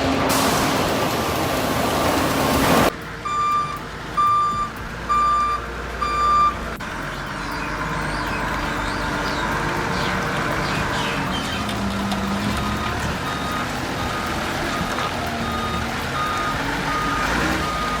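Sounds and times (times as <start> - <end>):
loud rushing noise: 0.0 - 2.9
vehicle reversing alarm beeping: 2.8 - 18.0.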